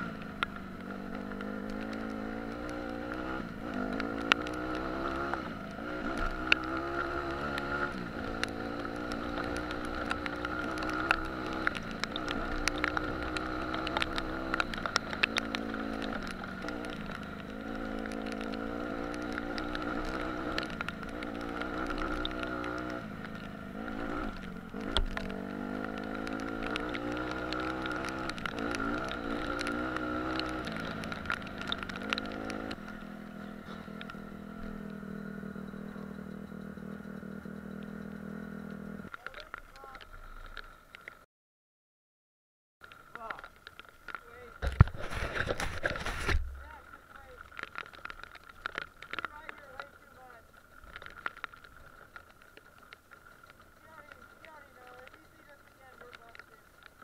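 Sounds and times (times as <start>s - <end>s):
dirt bike engine revving: 0.8s - 40.0s
sharp clicks and knocks: 42.8s - 50.1s.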